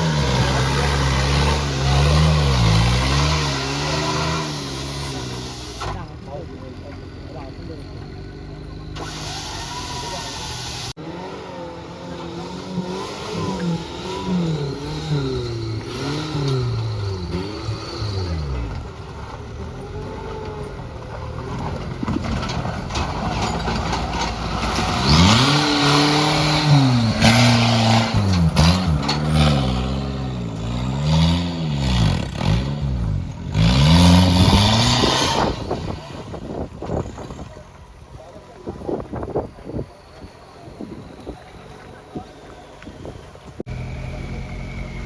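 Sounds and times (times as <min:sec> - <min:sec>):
off-road vehicle engine revving: 0:00.0 - 0:45.0
rushes of noise: 0:21.6 - 0:45.0.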